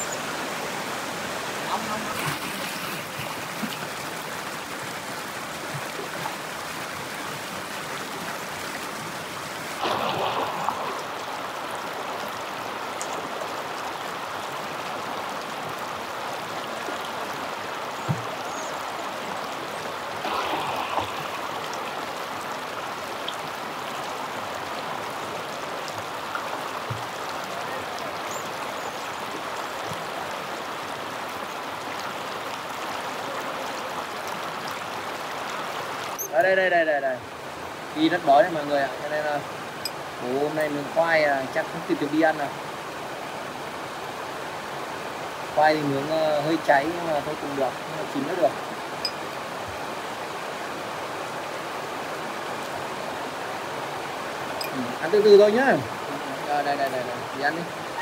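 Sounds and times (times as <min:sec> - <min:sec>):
stream rushing over rocks: 0:00.0 - 0:58.0.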